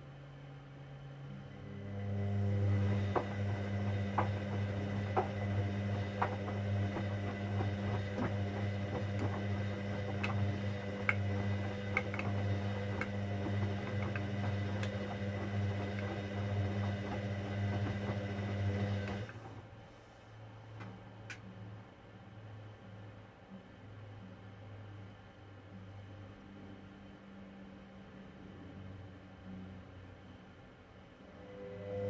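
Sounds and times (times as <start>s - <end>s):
washing machine humming: 1.2s - 21.3s.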